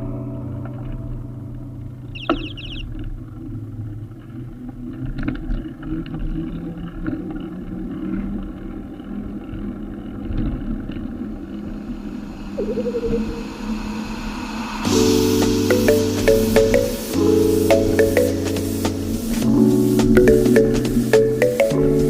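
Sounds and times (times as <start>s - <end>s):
brief wavering tone: 12.4s - 14.1s.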